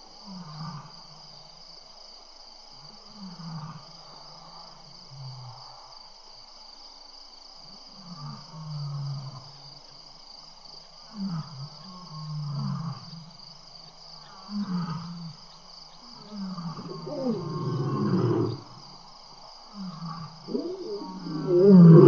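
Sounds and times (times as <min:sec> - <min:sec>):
lions growling and grunting: 0:16.1 - 0:18.8, 0:19.8 - 0:22.0.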